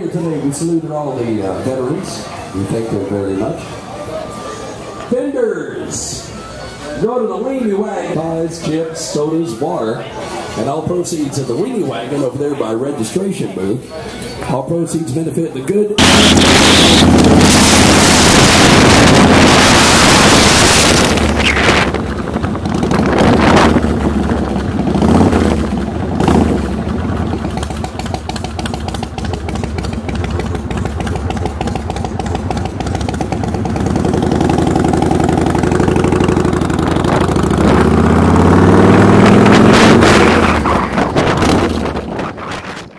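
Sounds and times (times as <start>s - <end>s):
wind rush on microphone: 16.0s - 25.7s, 39.0s - 42.9s
motorcycle engine running: 16.0s - 42.9s.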